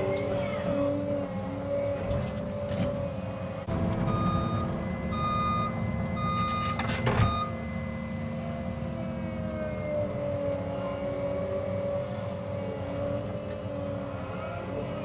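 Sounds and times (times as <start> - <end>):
diesel engine running: 0.0 - 15.0
travel alarm beeping: 4.0 - 7.8.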